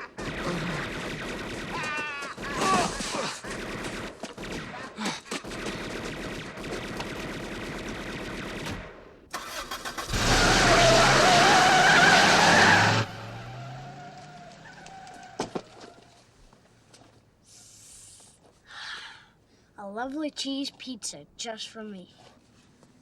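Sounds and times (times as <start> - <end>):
car engine pulling off: 9.3 - 16.0
tyre squeal: 9.4 - 16.1.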